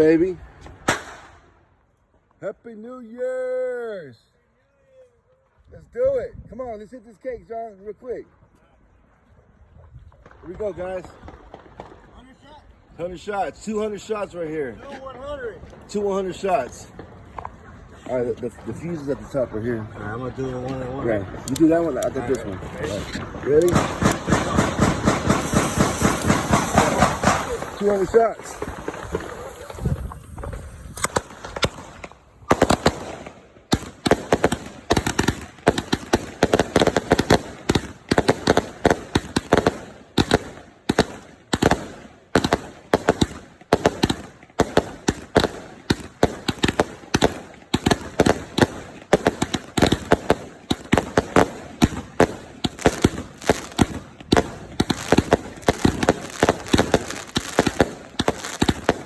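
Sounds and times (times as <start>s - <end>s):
fireworks firing rapid shots: 0.8s - 1.5s, 21.6s - 59.0s.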